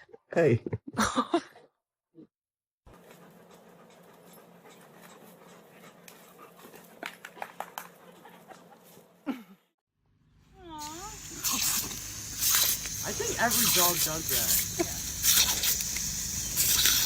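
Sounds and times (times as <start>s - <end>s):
dog panting: 2.9s - 9.2s, 11.8s - 17.0s.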